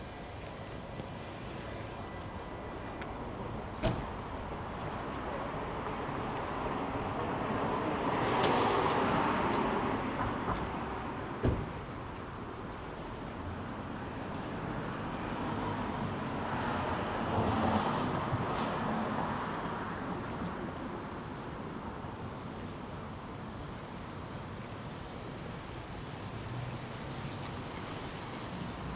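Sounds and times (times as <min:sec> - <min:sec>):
cars passing on road: 0:02.6 - 0:12.5
sharp thump: 0:11.4 - 0:12.3.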